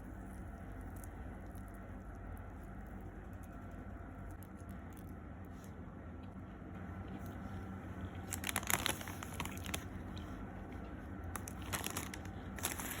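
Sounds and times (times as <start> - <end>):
paper wrapper crinkling: 8.2 - 10.4, 11.3 - 13.0.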